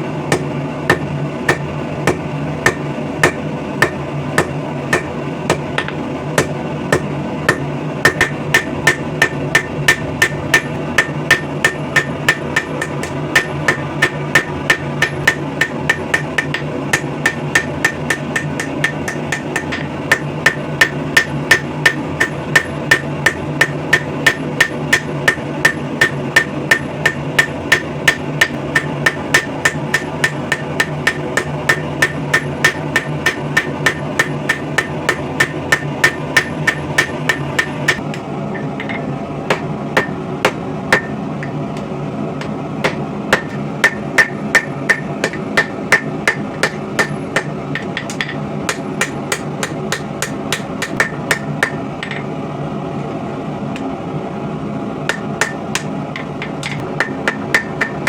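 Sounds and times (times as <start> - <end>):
constant low hum: 0.0 - 58.0
hammer striking hot steel on anvil: 0.3 - 52.3, 55.1 - 58.0.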